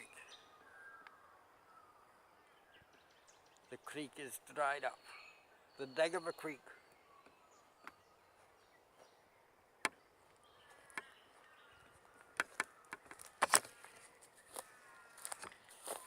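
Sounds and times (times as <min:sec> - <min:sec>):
footsteps crunching on dry ground: 0:10.2 - 0:16.0
sharp snap or crackle: 0:12.4 - 0:13.8.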